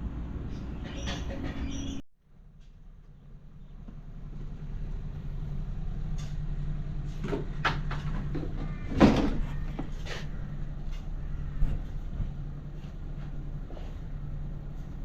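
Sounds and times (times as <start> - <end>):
engine humming steadily: 0.0 - 15.0
sharp knocks and clanks: 0.7 - 2.0, 7.1 - 12.3.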